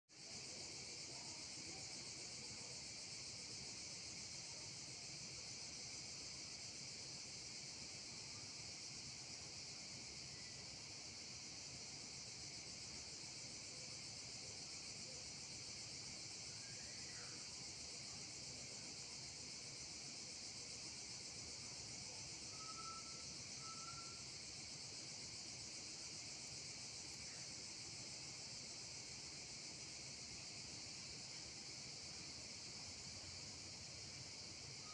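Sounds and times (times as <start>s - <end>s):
insect chorus chirring: 0.1s - 34.9s
faint whistled notes: 22.5s - 24.2s.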